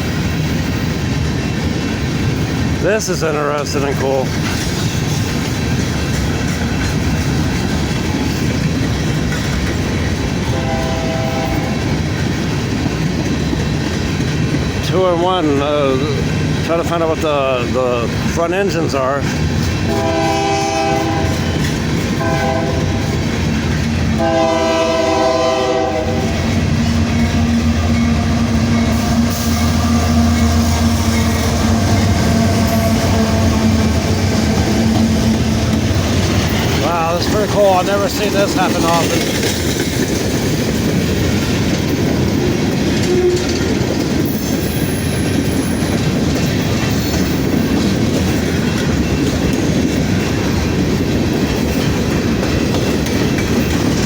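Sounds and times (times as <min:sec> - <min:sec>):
trains passing with heavy rumble: 0:00.0 - 0:54.0
locomotive horn chord: 0:10.5 - 0:11.8, 0:19.9 - 0:21.4, 0:22.2 - 0:23.2, 0:24.2 - 0:35.9.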